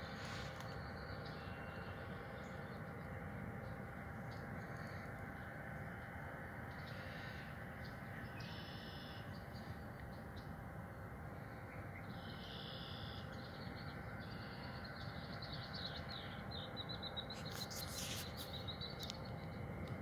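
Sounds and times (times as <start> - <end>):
songbird singing: 0.0 - 20.0
steady outdoor hiss: 0.0 - 20.0.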